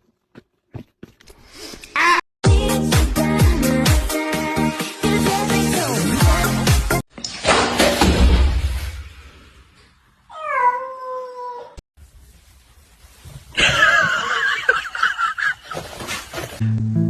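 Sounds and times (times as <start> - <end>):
cat meowing: 10.3 - 11.8
cat wavering high-pitched cry: 10.3 - 11.8.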